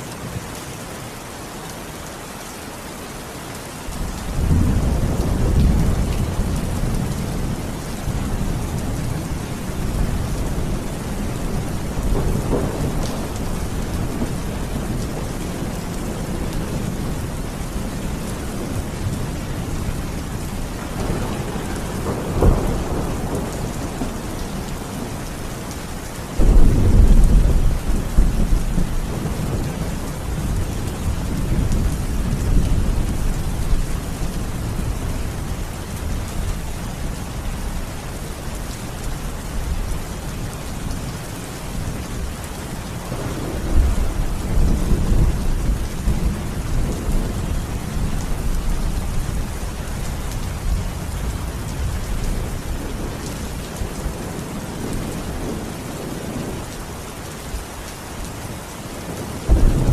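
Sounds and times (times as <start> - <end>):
heavy rain: 0.0 - 59.9
thunder rumbling: 4.0 - 25.5, 26.3 - 37.8, 43.0 - 56.7, 59.1 - 59.9
loud thunder clap: 59.5 - 59.9
sharp thunder crack: 59.5 - 59.9.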